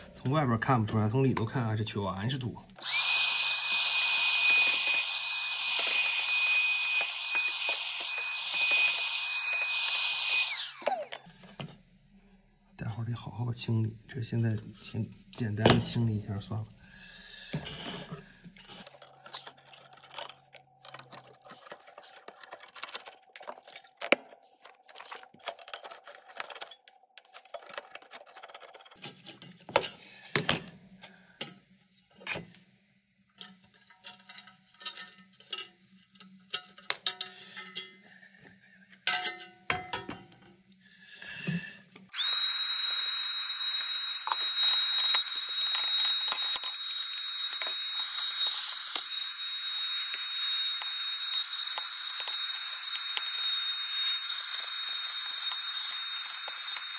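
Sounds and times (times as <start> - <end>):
vacuum cleaner running: 2.8 - 11.3, 42.1 - 53.8
tools clicking and scraping: 16.5 - 30.5, 33.3 - 38.1, 42.0 - 56.9.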